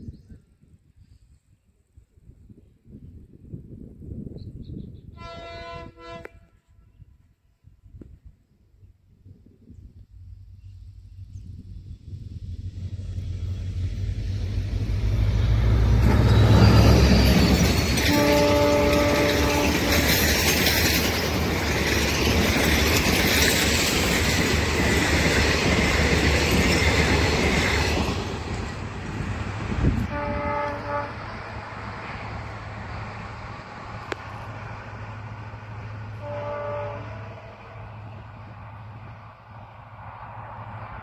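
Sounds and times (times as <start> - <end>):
train horn blast: 5.1 - 7.1, 15.4 - 20.2, 29.9 - 31.5, 36.1 - 38.0
diesel locomotive engine passing: 9.2 - 41.0
passenger coaches rumbling past: 10.1 - 41.0.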